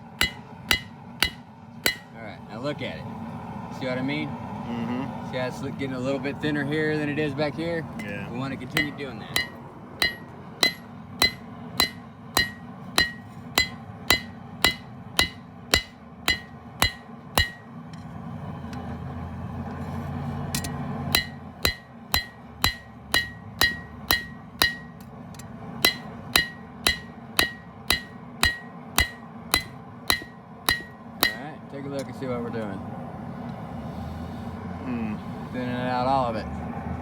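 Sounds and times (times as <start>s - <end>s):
hammer striking steel on anvil: 0.0s - 2.2s, 8.0s - 18.1s, 20.6s - 31.6s.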